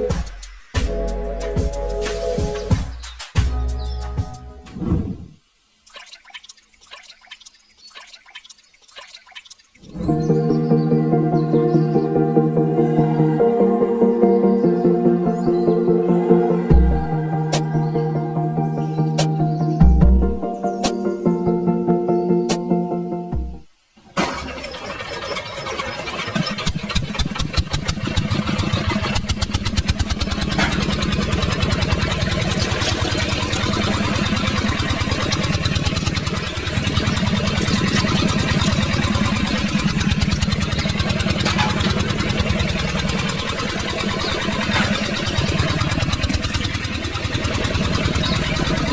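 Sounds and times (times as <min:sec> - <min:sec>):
small engine puttering: 0:24.2 - 0:48.9.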